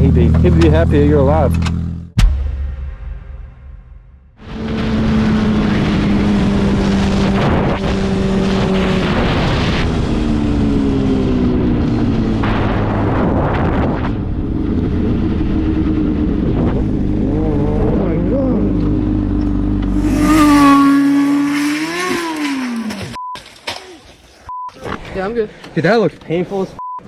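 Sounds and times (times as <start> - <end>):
wind noise: 4.4 - 18.2
motorcycle engine running: 14.3 - 23.2.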